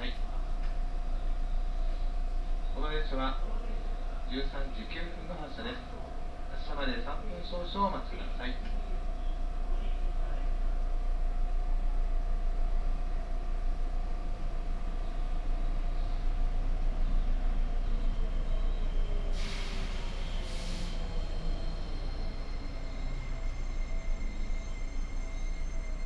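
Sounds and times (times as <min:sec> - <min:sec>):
train equipment humming: 0:00.0 - 0:26.0
air release hisses: 0:19.3 - 0:21.1.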